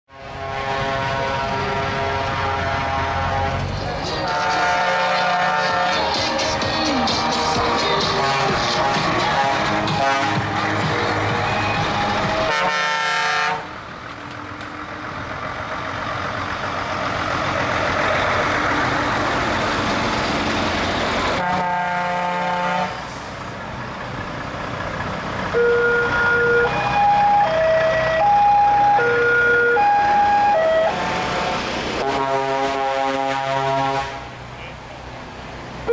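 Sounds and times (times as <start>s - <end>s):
truck air horn blasts: 0.1s - 6.4s, 8.0s - 13.8s, 21.4s - 23.4s, 30.6s - 34.4s
trucks running: 0.1s - 35.9s
horn playing short tune: 4.2s - 6.2s, 8.2s - 10.5s, 11.5s - 13.6s.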